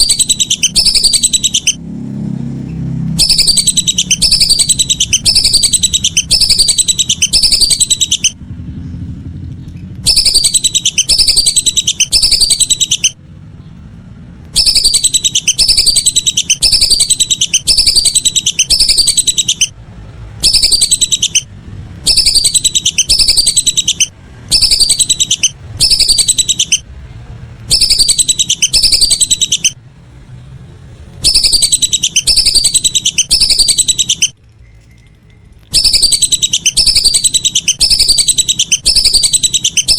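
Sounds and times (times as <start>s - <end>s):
ducks whistling: 0.0s - 1.8s, 3.1s - 8.4s, 10.0s - 13.2s, 14.5s - 19.8s, 20.4s - 26.9s, 27.7s - 29.8s, 31.2s - 34.4s, 35.7s - 39.9s.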